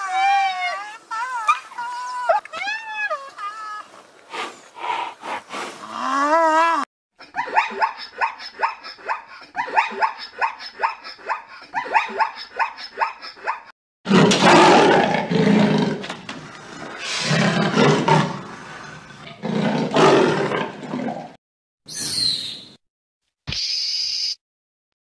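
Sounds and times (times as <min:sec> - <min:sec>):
big cat growling: 0:14.1 - 0:21.4.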